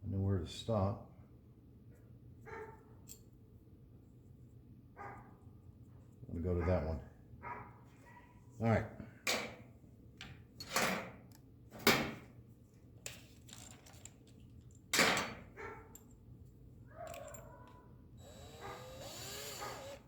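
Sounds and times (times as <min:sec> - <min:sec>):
metal tools clattering: 0:13.1 - 0:16.2, 0:17.0 - 0:17.8.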